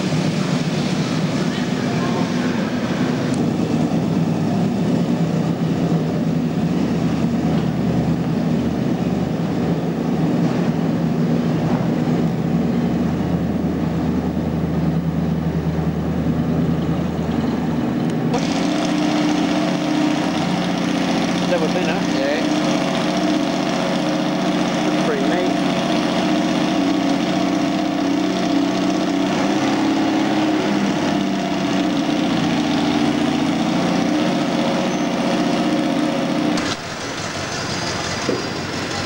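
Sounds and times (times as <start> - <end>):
hissy engine sound: 0.0 - 39.0
car engine running at low revs: 18.0 - 37.3.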